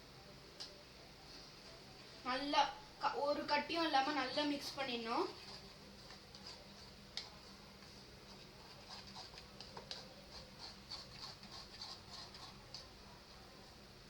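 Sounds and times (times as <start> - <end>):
spoon scraping a bowl: 8.3 - 12.8.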